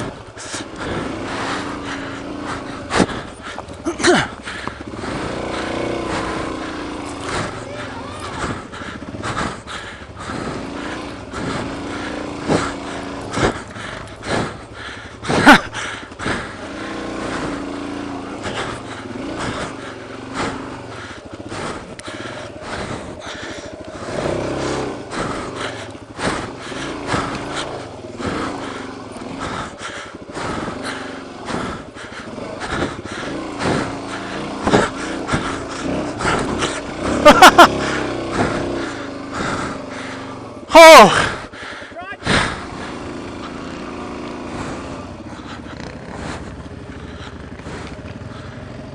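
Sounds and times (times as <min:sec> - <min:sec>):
motorcycle engine at low revs: 0:00.0 - 0:48.9.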